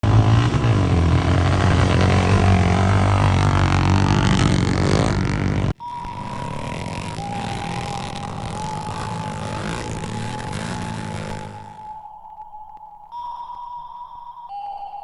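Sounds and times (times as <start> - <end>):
motocross bike engines revving: 0.0 - 11.9
steady high drone: 0.0 - 12.1.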